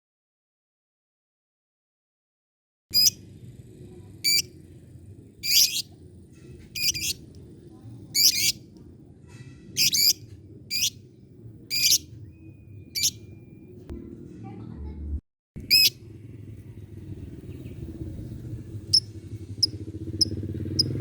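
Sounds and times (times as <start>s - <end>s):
faint low hum: 2.9s - 21.0s
lovebird chirping: 3.0s - 3.2s, 4.2s - 4.5s, 5.4s - 6.0s, 6.8s - 7.2s, 8.2s - 8.6s, 9.8s - 11.0s, 11.7s - 13.5s, 15.7s - 16.0s.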